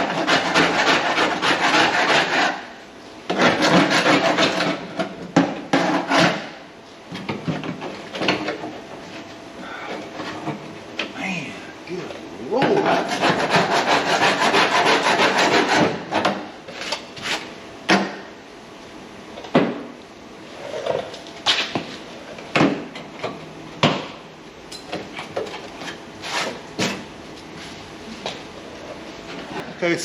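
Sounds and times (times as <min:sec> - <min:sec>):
hand tool rasping on metal: 0:00.0 - 0:02.6, 0:03.3 - 0:04.8, 0:12.8 - 0:15.9.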